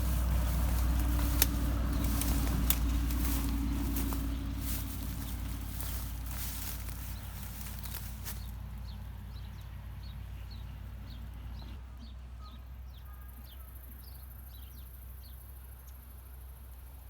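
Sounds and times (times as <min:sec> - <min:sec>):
small bird chirping: 0:00.0 - 0:09.6
steady low rumble: 0:00.0 - 0:10.2.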